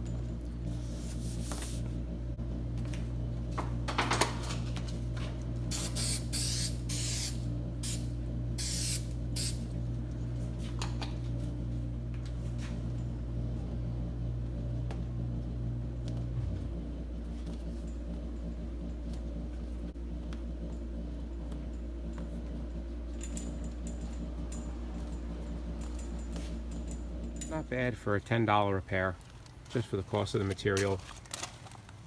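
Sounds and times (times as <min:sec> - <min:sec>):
low hum: 0:00.0 - 0:28.8
vinyl hissing when pressed: 0:08.6 - 0:09.6.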